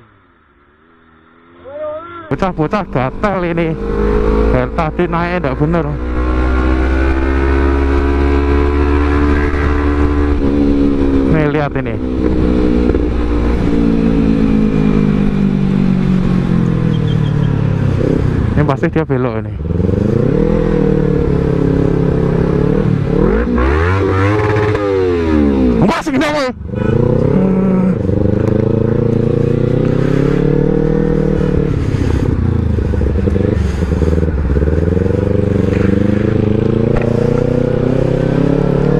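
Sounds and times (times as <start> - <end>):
motorcycle engine running: 19.6 - 38.9.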